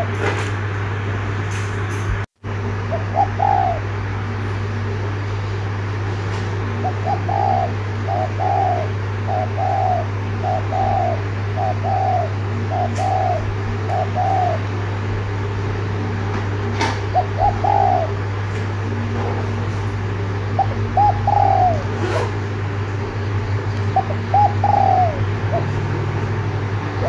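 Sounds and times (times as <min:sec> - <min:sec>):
steady low hum: 0:00.0 - 0:27.0
dove cooing: 0:02.8 - 0:05.2, 0:06.6 - 0:15.4, 0:16.5 - 0:19.6, 0:20.4 - 0:27.0.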